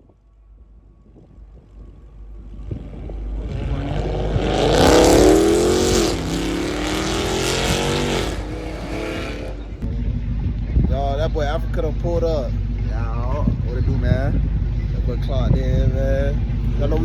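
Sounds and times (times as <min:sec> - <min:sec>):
car engine revving: 0:02.3 - 0:10.0.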